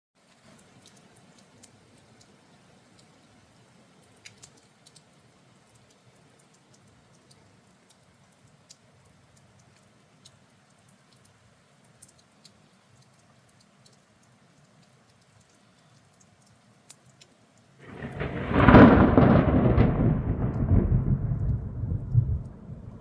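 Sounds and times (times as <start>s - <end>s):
faint raindrop ticks: 0.2s - 23.0s
thunder crack and rumble: 17.8s - 23.0s.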